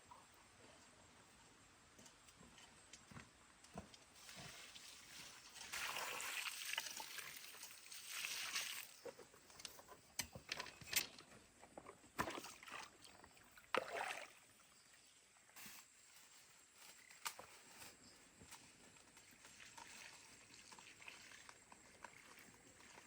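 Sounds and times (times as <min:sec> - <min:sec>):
water poured onto soil: 0:04.2 - 0:09.0, 0:19.3 - 0:23.0.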